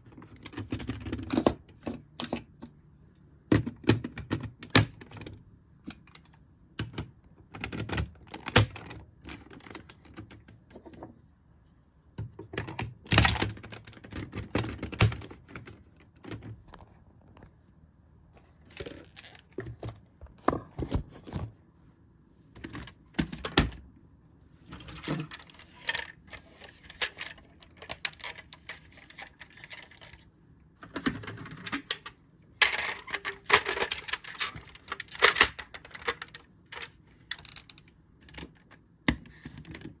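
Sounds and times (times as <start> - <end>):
plastic toy parts clicking: 24.8 - 30.2, 30.8 - 40.0.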